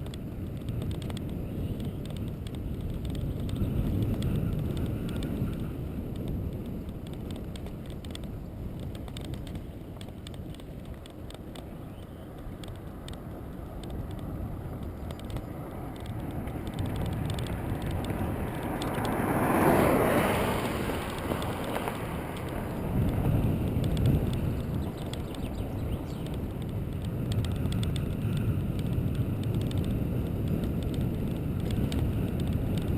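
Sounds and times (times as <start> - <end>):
wind on microphone: 0.0 - 32.9
vehicle passing by: 15.1 - 25.9.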